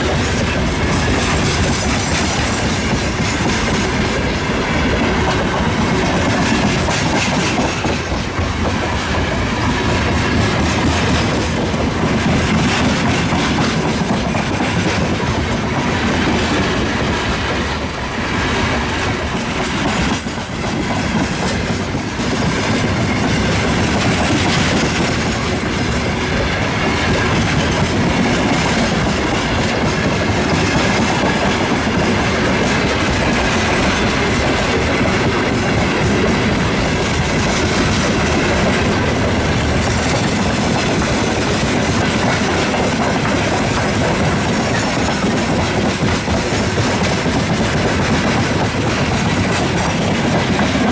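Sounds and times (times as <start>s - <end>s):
freight train wagons rolling: 0.0s - 50.9s
wheels clacking over rail joints: 0.0s - 50.9s
high wheel squeal: 8.2s - 12.0s, 12.9s - 23.9s, 25.8s - 27.6s.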